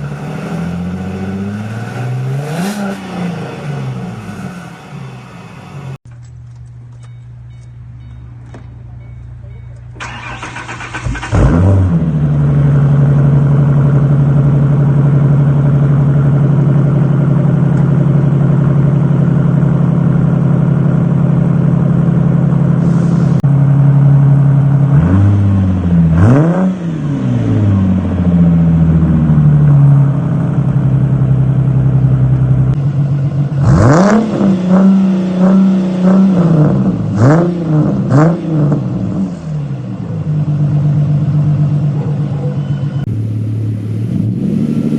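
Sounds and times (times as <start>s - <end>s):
car engine revving: 0.0s - 6.0s, 10.0s - 44.9s
car engine idling: 3.5s - 26.2s, 27.0s - 34.0s, 36.9s - 44.9s.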